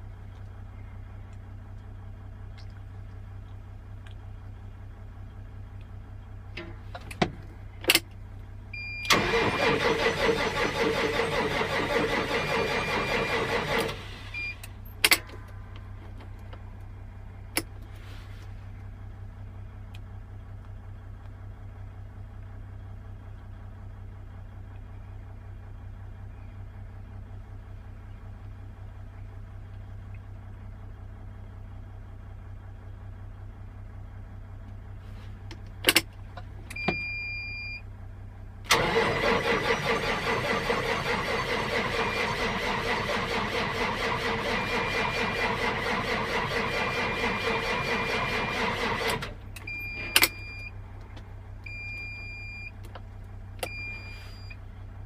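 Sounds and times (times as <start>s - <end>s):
low steady hum: 0.0s - 55.0s
diesel engine cranking on starter: 8.8s - 16.5s, 38.6s - 54.6s.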